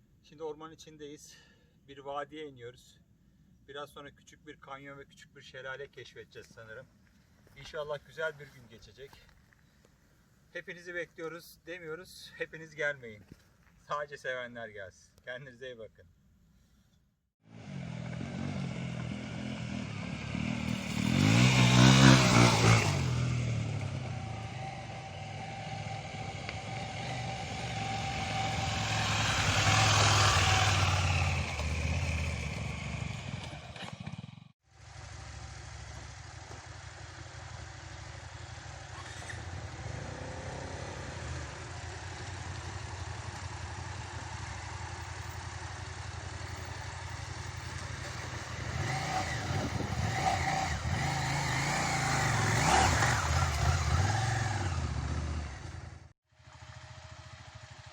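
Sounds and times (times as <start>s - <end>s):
motorcycles passing: 17.5s - 57.9s.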